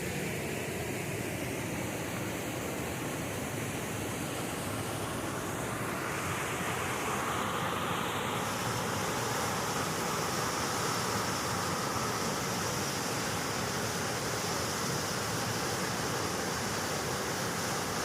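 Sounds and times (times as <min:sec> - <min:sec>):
waterfall rushing: 0:04.0 - 0:18.0.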